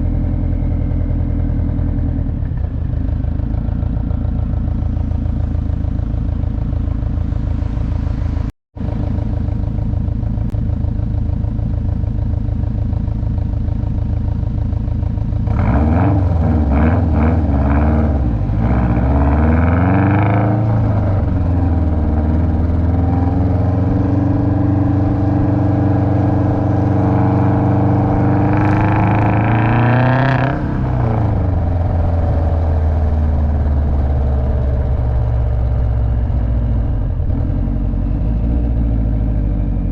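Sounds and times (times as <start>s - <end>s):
car engine revving: 4.1s - 10.6s, 15.4s - 39.9s.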